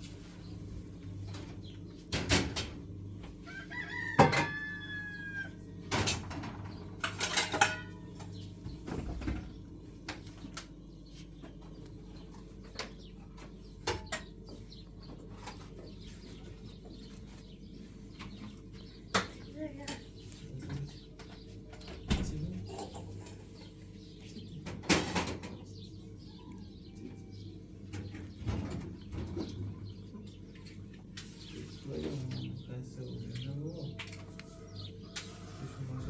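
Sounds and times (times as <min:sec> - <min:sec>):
rooster crowing: 0:03.4 - 0:05.8, 0:34.3 - 0:36.0.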